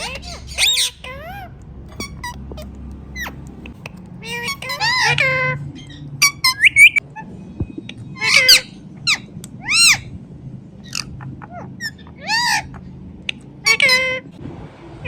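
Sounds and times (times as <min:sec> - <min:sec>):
parakeet chirps and clicks: 0:00.0 - 0:05.0
parakeet high calls: 0:00.0 - 0:07.4, 0:10.8 - 0:12.9.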